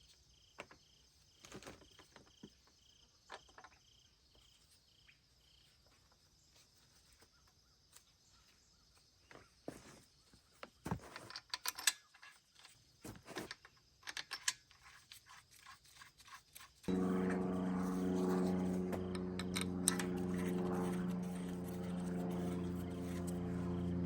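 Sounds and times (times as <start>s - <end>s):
steady machine drone: 16.9s - 24.0s.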